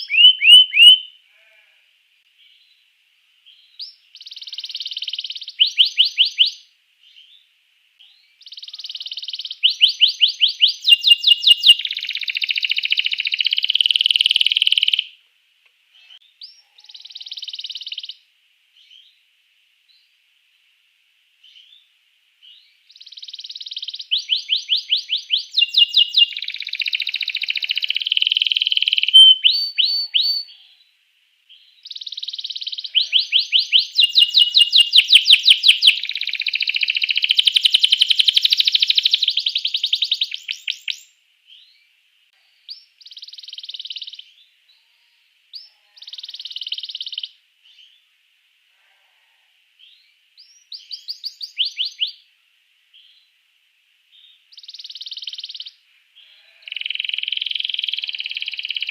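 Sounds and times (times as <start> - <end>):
canary singing trills: 0.0 - 1.6, 3.5 - 7.4, 8.0 - 15.2, 16.0 - 18.2, 22.4 - 30.9, 31.5 - 41.8, 42.5 - 48.0, 49.8 - 52.2, 54.2 - 58.9.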